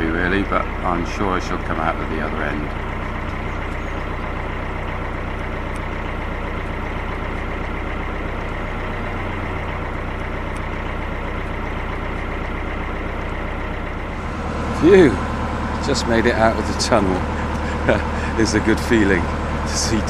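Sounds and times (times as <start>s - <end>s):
diesel engine running steadily: 0.0s - 20.0s.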